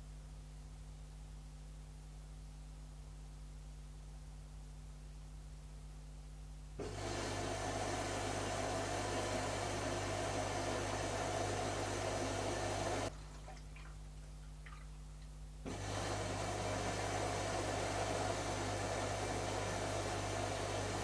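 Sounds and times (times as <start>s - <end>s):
quiet background hum: 12.5s - 15.7s.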